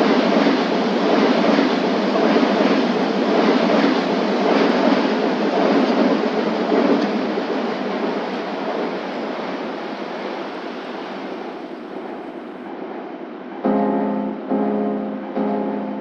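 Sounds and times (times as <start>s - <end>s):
steady rushing noise: 0.0s - 16.0s
piano chords: 13.6s - 16.0s.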